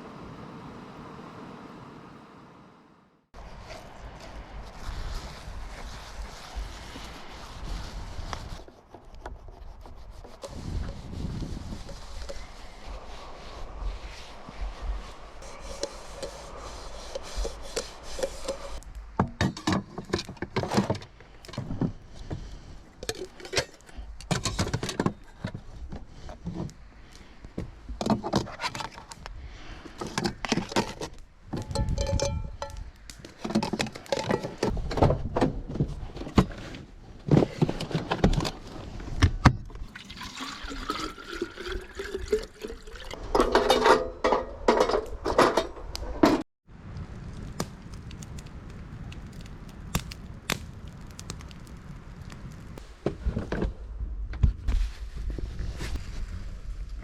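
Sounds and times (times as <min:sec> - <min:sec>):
water pouring and splashing: 0:39.7 - 0:43.6.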